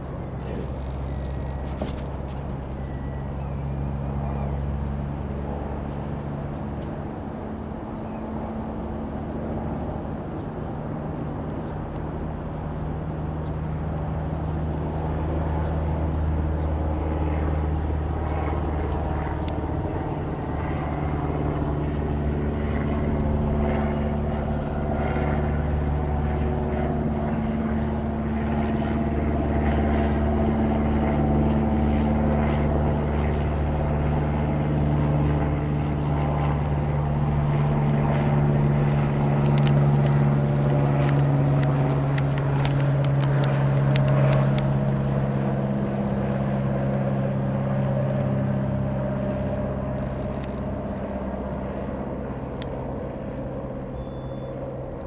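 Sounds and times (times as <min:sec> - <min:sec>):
light aircraft engine droning: 0:00.0 - 0:55.0.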